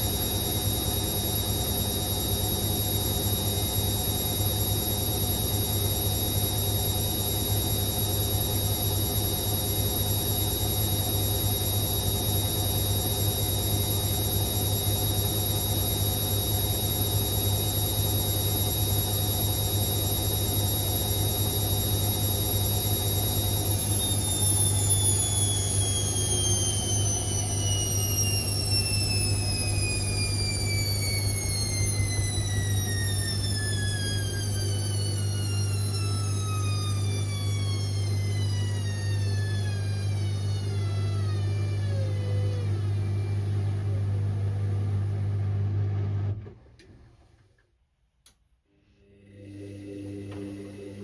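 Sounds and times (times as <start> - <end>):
washing machine motor whine: 0.0 - 47.3, 48.8 - 51.0
low hum: 23.3 - 40.2, 48.8 - 51.0.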